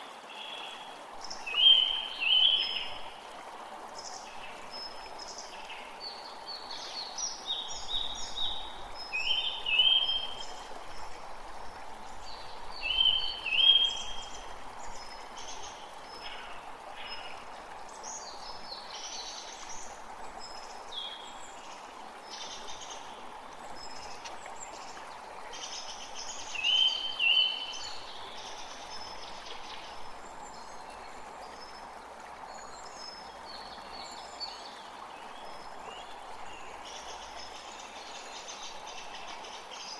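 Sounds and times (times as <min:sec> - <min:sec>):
creek water flowing: 0:00.0 - 0:39.9
birds singing and calling: 0:00.4 - 0:03.3, 0:04.0 - 0:31.9.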